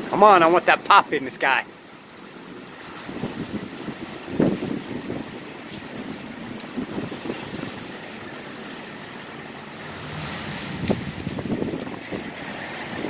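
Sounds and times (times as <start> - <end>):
rain falling: 0.0 - 13.0
wind gusting against microphone: 2.9 - 8.5, 9.6 - 13.0.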